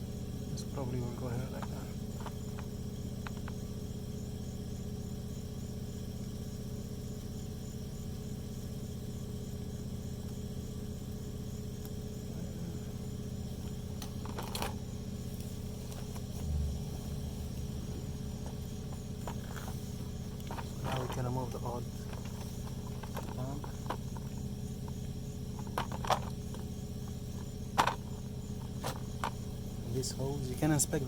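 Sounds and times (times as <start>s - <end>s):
low mechanical hum: 0.0s - 31.0s
clatter of clicks: 22.0s - 26.6s.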